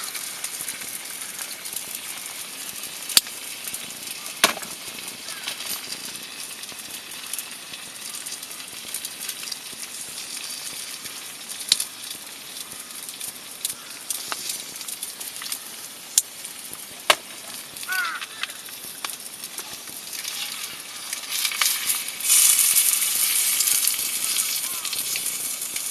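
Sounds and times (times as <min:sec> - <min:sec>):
sharp pops of fire: 0:00.0 - 0:25.9
wood fire crackling and hissing: 0:00.0 - 0:25.9.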